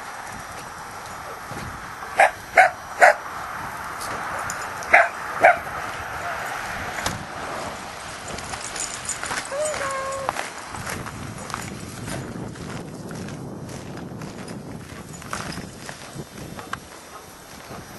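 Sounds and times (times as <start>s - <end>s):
dog barking: 2.2s - 3.3s, 4.9s - 6.4s.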